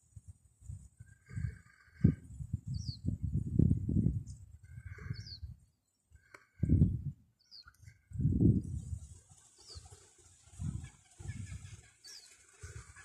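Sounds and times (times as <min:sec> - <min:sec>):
small birds chirping: 0:01.0 - 0:03.2, 0:04.3 - 0:08.8, 0:09.4 - 0:13.0.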